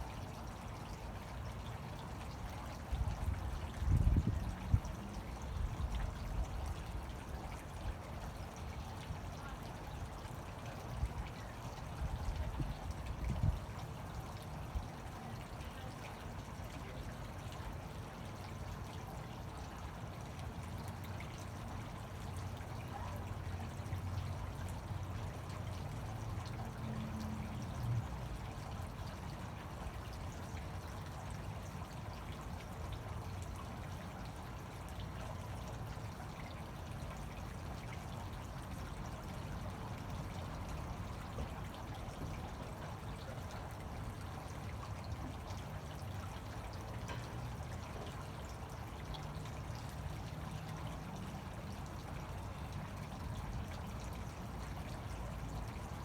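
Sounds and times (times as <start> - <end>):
fountain water splashing: 0.0 - 56.0.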